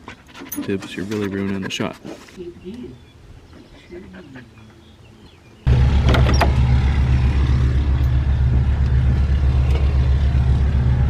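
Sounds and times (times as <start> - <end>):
large diesel engine running: 5.7 - 11.0.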